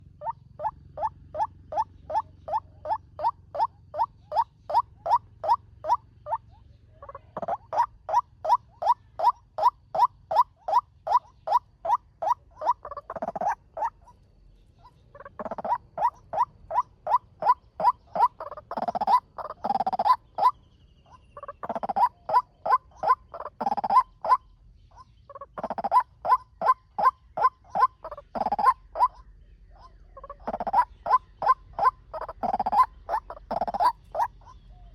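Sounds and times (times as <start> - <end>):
waterhen calling: 0.0 - 14.1, 14.8 - 20.6, 21.4 - 24.4, 25.0 - 29.2, 29.8 - 34.9.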